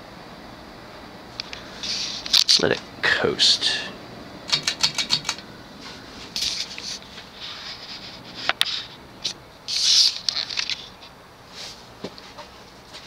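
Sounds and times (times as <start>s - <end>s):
ceiling fan coasting down: 0.0s - 10.2s
sharp click: 4.5s - 5.4s
scraping or rustling: 5.8s - 9.0s.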